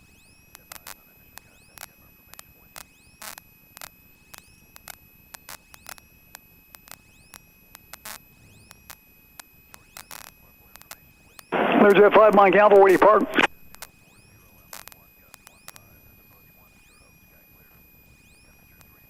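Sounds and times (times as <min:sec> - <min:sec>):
high electrical whine: 0:00.0 - 0:19.0
irregular radio clicks: 0:07.8 - 0:14.0, 0:14.7 - 0:15.8.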